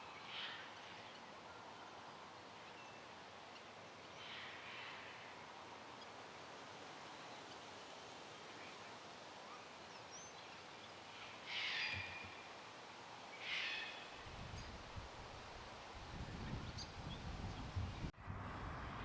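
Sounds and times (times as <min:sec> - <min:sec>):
harsh bird calls: 0:13.4 - 0:14.8
wind buffeting microphone: 0:14.2 - 0:19.0.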